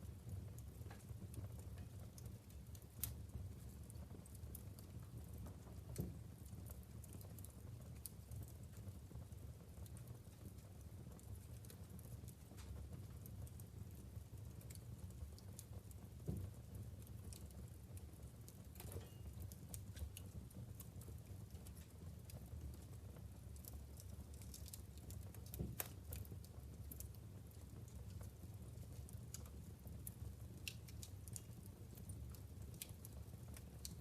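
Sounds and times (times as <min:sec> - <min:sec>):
logs crackling in fireplace: 0:00.0 - 0:34.0
low fire rumble: 0:00.0 - 0:34.0.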